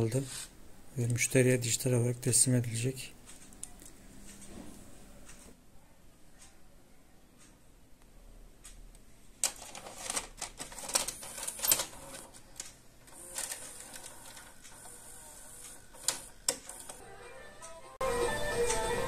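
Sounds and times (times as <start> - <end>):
cassette mechanism running: 9.4 - 17.1.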